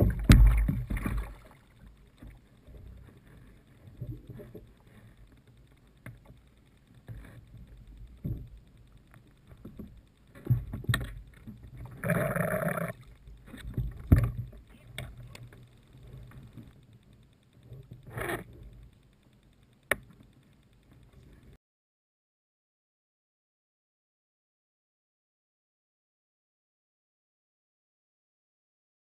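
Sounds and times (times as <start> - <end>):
water splashing: 0.0 - 1.9
water sloshing around a kayak: 0.0 - 5.4.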